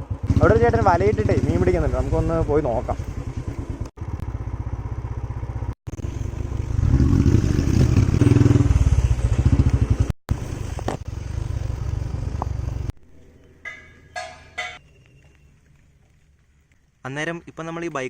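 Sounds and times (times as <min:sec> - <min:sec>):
motorcycle engine running: 0:00.0 - 0:12.9.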